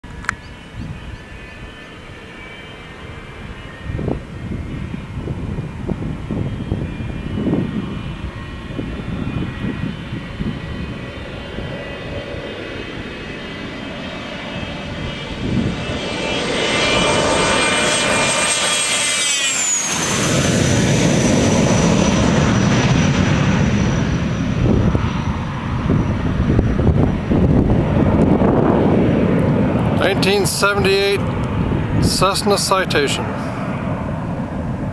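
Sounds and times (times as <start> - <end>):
jet engine whine and roar: 0.0 - 34.9.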